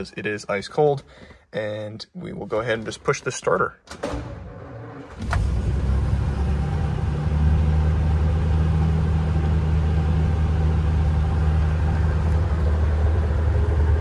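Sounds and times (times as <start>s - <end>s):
car engine starting and idling: 3.9s - 14.0s.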